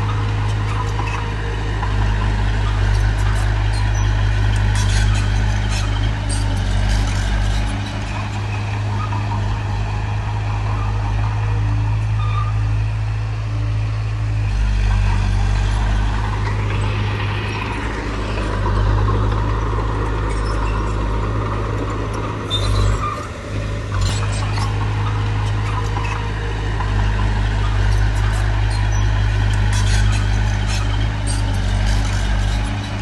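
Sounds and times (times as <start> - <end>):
diesel engine droning: 0.0 - 33.0.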